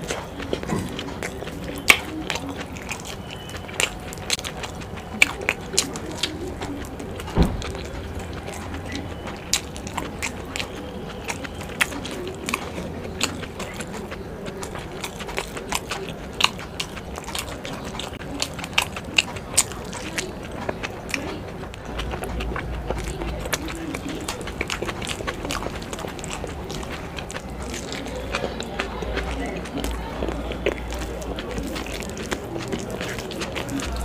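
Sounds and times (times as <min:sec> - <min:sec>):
chewing and lip smacks: 0:00.0 - 0:34.0
wet mouth clicks: 0:00.0 - 0:34.0
low thump: 0:07.3 - 0:08.3.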